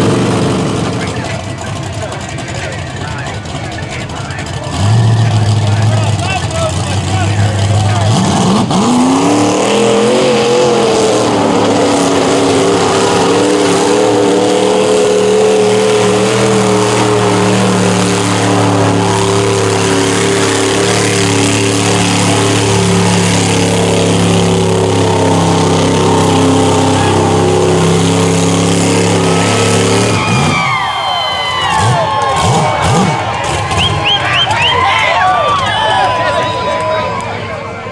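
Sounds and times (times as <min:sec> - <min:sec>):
truck engine revving high: 0:00.0 - 0:37.9.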